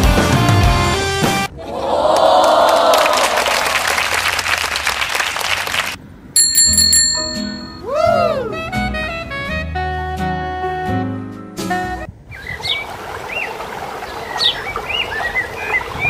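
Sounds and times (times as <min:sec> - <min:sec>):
music: 0:00.0 - 0:01.5, 0:08.0 - 0:12.1
bell ringing quickly: 0:06.4 - 0:07.9.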